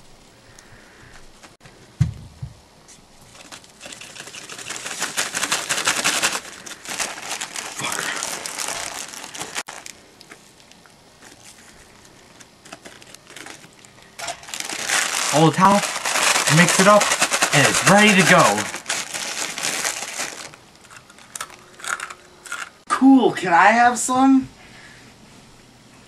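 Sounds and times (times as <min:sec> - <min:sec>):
dull thump: 0:02.0 - 0:02.6
plastic packet crinkling: 0:03.2 - 0:22.8.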